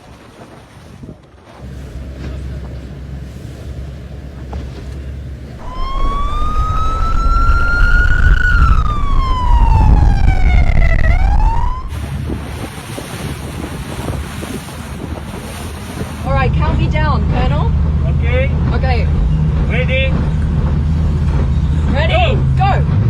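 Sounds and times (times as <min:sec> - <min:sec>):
boat engine rumble: 0:00.0 - 0:23.0
siren wailing: 0:05.6 - 0:11.9
wind noise: 0:05.6 - 0:17.4.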